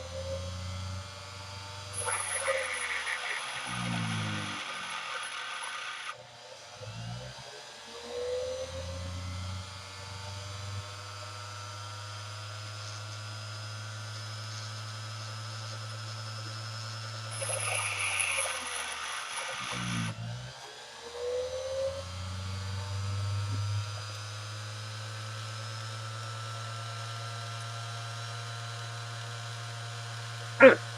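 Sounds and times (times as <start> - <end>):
grinder humming: 1.8 - 6.2, 17.1 - 20.2, 30.4 - 30.9
steel grinding on wheel: 2.0 - 6.1, 17.3 - 20.1.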